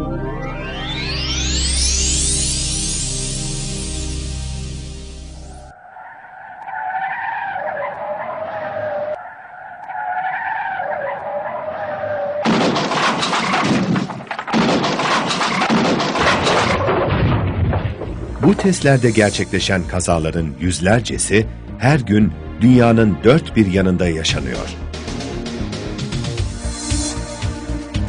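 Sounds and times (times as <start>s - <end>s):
electronic music: 0.0s - 6.8s, 24.4s - 28.0s
car tyres screeching: 5.4s - 13.7s
car crash with knocks and clatter: 12.4s - 18.5s.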